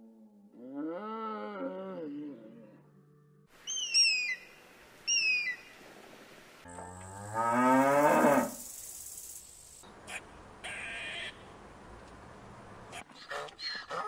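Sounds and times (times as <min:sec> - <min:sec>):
cow mooing: 0:06.7 - 0:08.5.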